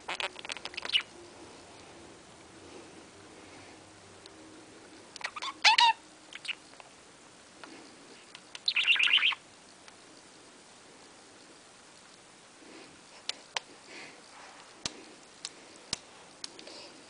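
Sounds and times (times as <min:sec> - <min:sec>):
budgerigar chirping: 0:00.7 - 0:01.1, 0:05.2 - 0:06.6, 0:08.6 - 0:09.4.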